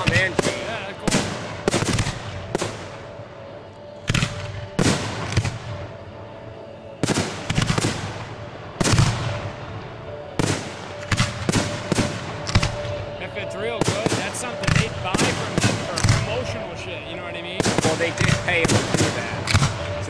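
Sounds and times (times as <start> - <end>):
firework shells booming: 0.0 - 3.0.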